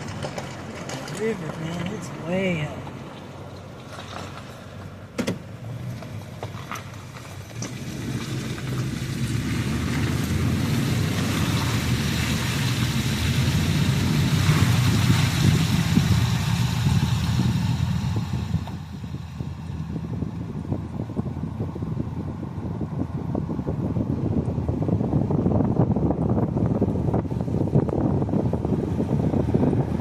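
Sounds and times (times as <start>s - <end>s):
car driving: 0.0s - 30.0s.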